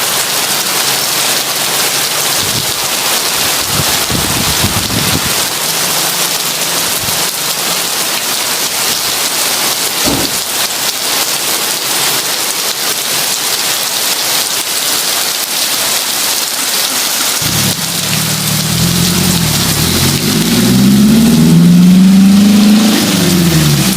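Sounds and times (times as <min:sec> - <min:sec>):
heavy rain: 0:00.0 - 0:23.9
low thump: 0:10.0 - 0:10.4
low rumble: 0:17.4 - 0:21.6.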